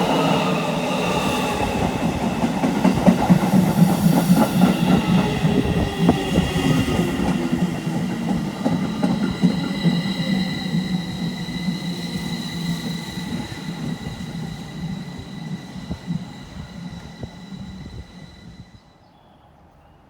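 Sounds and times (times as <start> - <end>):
train wheels rumbling on rails: 0.0 - 18.9
clicks of train wheels: 1.8 - 16.2.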